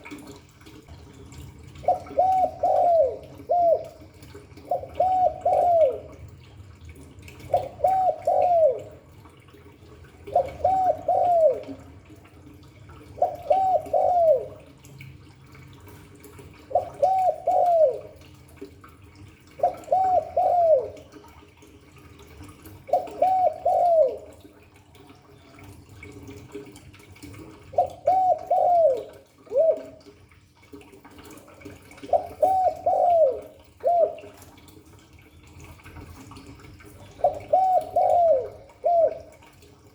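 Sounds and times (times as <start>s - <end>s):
dove cooing: 1.7s - 6.3s, 7.4s - 9.2s, 10.1s - 12.2s, 13.0s - 14.8s, 16.6s - 18.4s, 19.5s - 21.3s, 22.8s - 24.5s, 27.7s - 30.1s, 31.2s - 34.6s, 36.9s - 39.6s.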